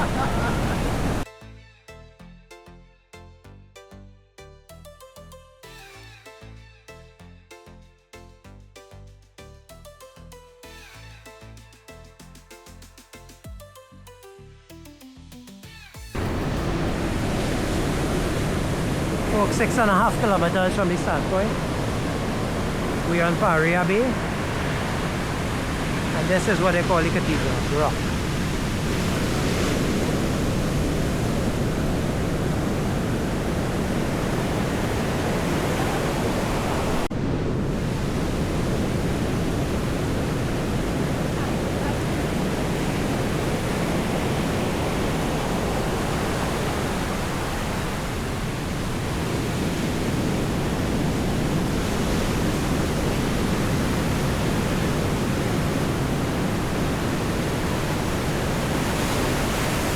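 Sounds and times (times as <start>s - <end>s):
surf breaking on shore: 0.0s - 1.3s, 16.2s - 59.9s.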